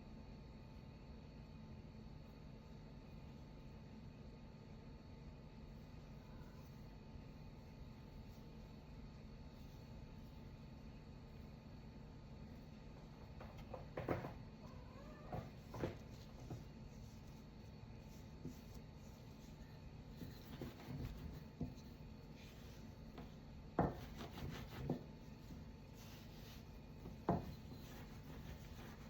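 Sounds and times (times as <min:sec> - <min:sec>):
hands rubbing and scraping on wood: 0:16.0 - 0:29.0.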